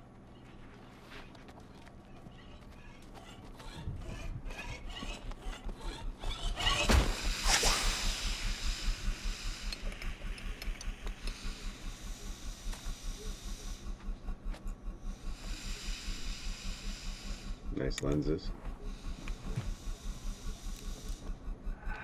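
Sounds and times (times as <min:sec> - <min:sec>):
rhythmic pulsing: 0:00.0 - 0:22.0
loud hissing whoosh: 0:06.6 - 0:13.8
light clicking: 0:08.0 - 0:11.6, 0:17.8 - 0:18.4.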